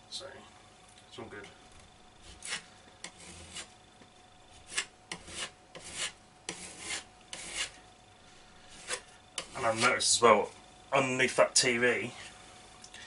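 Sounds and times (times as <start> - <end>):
filler knife scraping plaster: 2.2 - 3.7, 4.5 - 7.8, 8.6 - 10.1.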